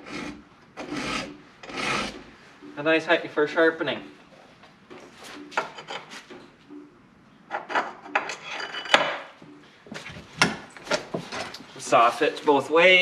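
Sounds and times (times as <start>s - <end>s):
file rasping on chainsaw chain: 0.0s - 2.2s.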